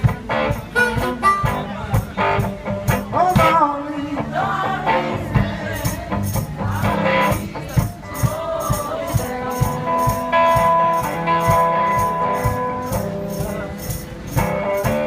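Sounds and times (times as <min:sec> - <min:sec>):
blues guitar: 0:00.0 - 0:15.0
tambourine jingling: 0:05.6 - 0:15.0.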